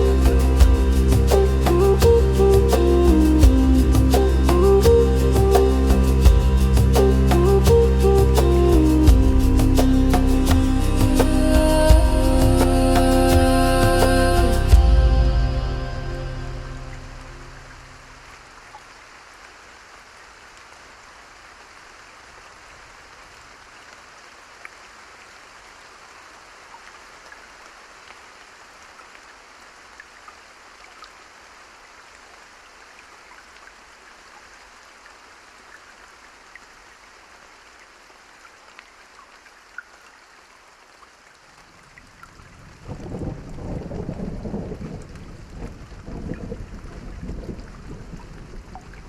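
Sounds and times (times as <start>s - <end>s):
rain pattering: 0.0s - 49.0s.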